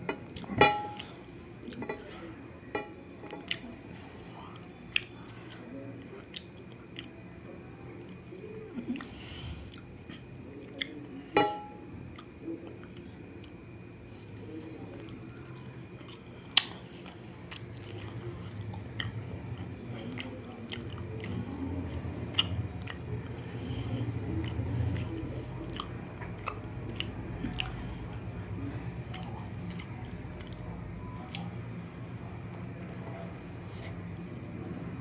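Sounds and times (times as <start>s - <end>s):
wet chewing sounds: 0.1s - 7.2s, 8.0s - 35.0s
lip and tongue clicks: 20.0s - 21.5s, 22.3s - 23.3s, 24.4s - 27.8s, 29.0s - 31.5s.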